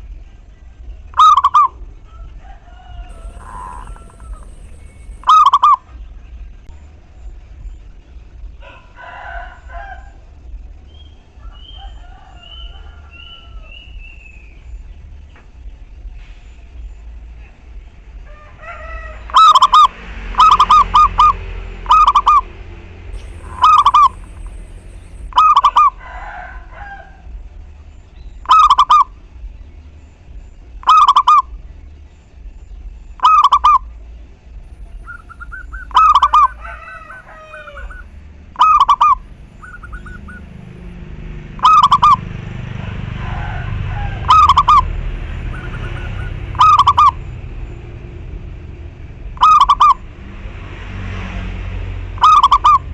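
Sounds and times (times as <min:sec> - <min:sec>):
low background rumble: 0:00.0 - 0:50.7
dove cooing: 0:03.1 - 0:05.8, 0:23.2 - 0:26.0, 0:34.7 - 0:47.2
small birds chirping: 0:03.1 - 0:06.4, 0:23.1 - 0:25.8, 0:28.0 - 0:42.2.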